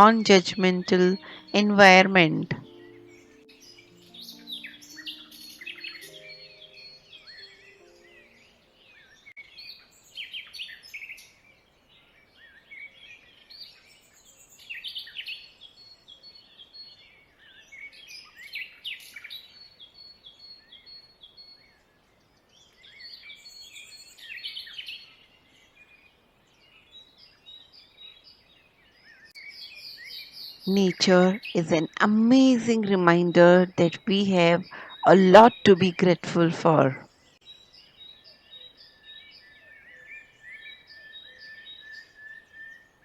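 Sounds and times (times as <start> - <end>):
birds chirping and singing: 0.0 - 9.3.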